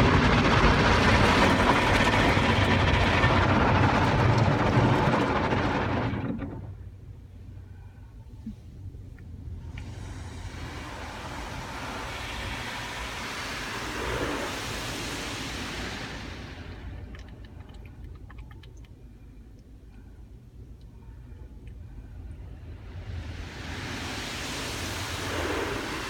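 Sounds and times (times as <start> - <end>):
steady low hum: 0.0 - 26.0
water spray hissing over car: 9.7 - 17.9, 22.7 - 26.0.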